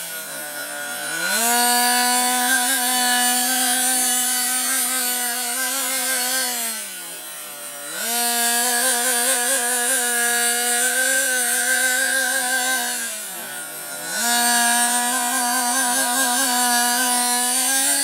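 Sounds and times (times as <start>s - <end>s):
small engine buzzing at high revs: 0.0s - 18.0s.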